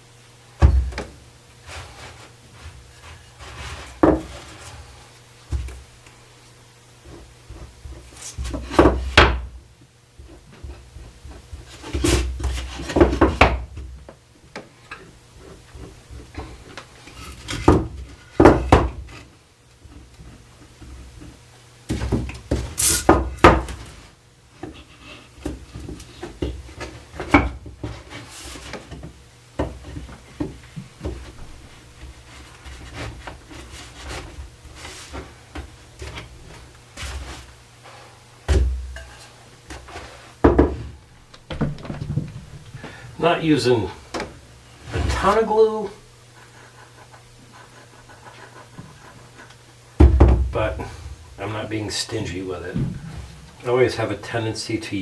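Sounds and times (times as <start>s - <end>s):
wood knocking on wood: 41.4s - 43.0s.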